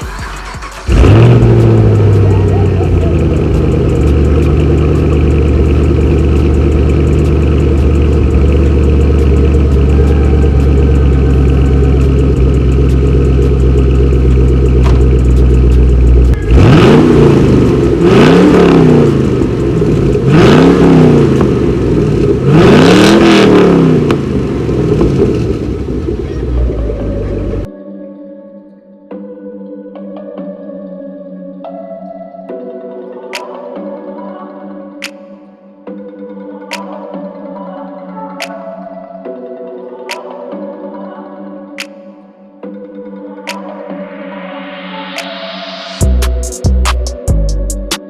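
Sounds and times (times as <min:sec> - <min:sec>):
car engine idling and revving: 0:00.0 - 0:27.7.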